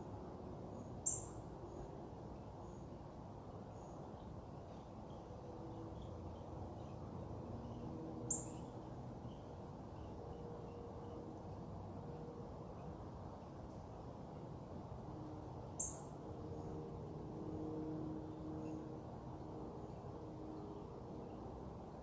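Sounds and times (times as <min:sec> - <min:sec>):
outdoor background noise: 0:00.0 - 0:22.0
small birds chirping: 0:07.7 - 0:10.1, 0:15.8 - 0:16.1.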